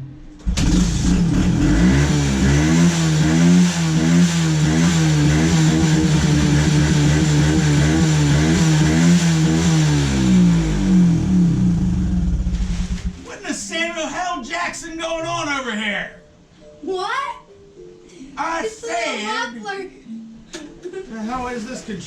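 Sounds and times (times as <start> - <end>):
dirt bike engine idling: 0.4 - 13.2.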